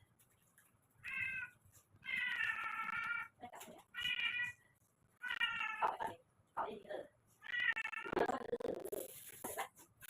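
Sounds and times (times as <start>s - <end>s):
cat meowing: 1.0s - 4.6s, 5.2s - 6.0s, 7.4s - 8.3s.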